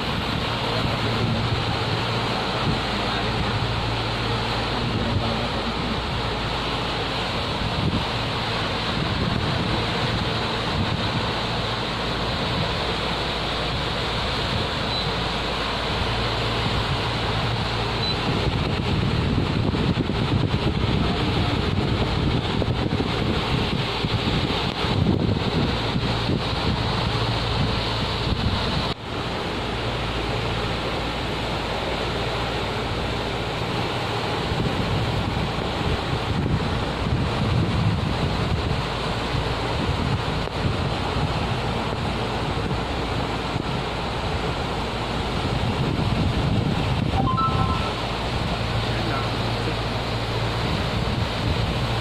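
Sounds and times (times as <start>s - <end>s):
wind on microphone: 0.0s - 30.9s, 32.9s - 52.0s
steady low rumble: 0.0s - 52.0s
water noise from moving boat: 0.0s - 52.0s
low steady hum: 41.9s - 52.0s.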